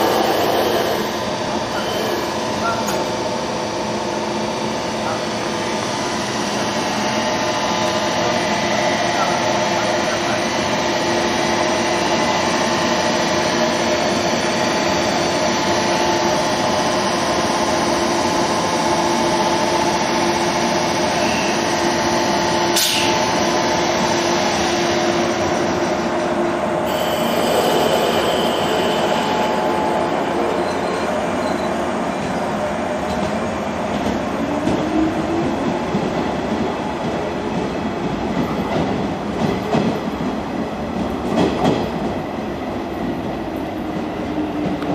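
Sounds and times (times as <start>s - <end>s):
train mechanical whine: 0.0s - 34.0s
rail noise: 0.0s - 44.9s.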